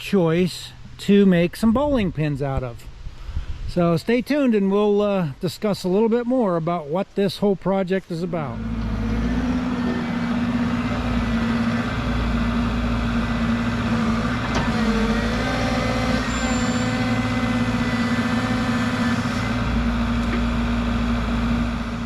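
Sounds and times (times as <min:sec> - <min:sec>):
excavator diesel engine running: 0:08.4 - 0:22.0.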